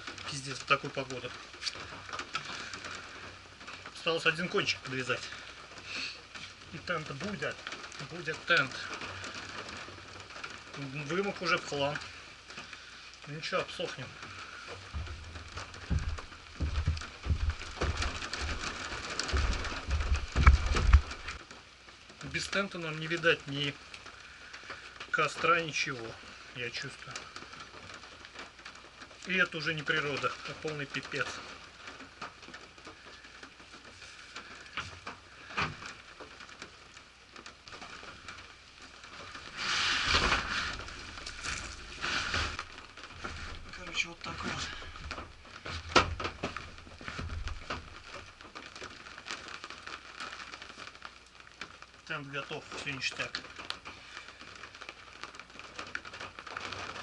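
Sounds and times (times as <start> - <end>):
loud rustling rush: 0.0 - 57.0
rain pattering: 0.0 - 57.0
low thumps: 14.8 - 21.4.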